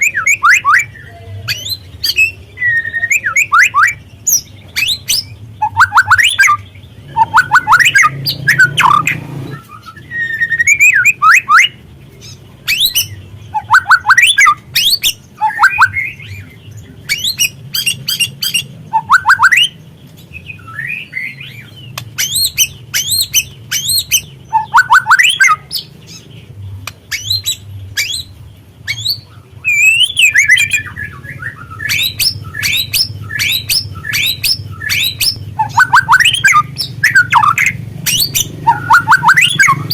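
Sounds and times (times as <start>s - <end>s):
bird chirps and whistles: 0.0s - 11.8s, 12.6s - 16.5s, 17.1s - 26.2s, 26.8s - 39.9s.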